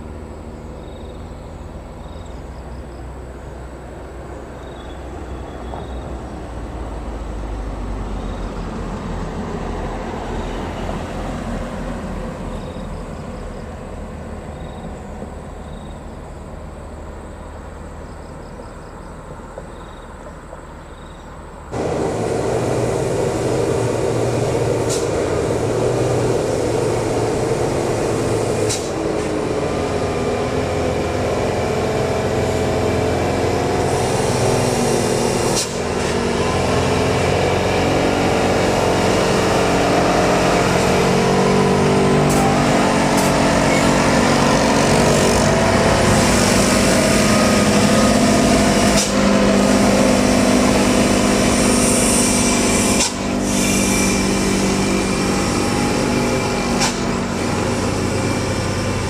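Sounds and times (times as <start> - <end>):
heavy truck engine running: 21.7 - 59.0.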